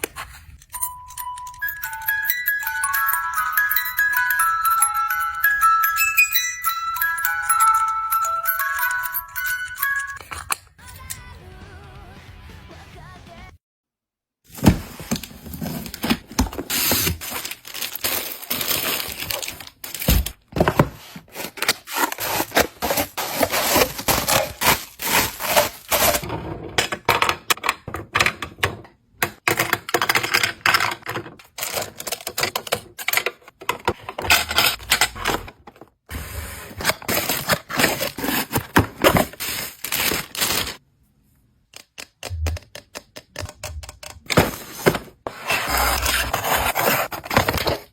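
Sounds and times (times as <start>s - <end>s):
paper bags crinkling: 14.5s - 26.2s, 36.8s - 40.8s.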